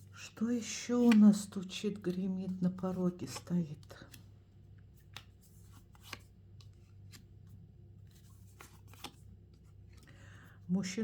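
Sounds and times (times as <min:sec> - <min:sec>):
cards clicking and flicking: 0:05.0 - 0:07.3, 0:08.5 - 0:09.3.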